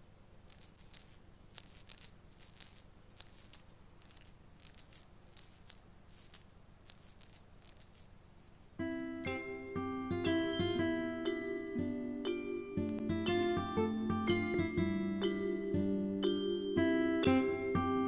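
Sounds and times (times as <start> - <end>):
shaker rattle: 0.0 - 8.8.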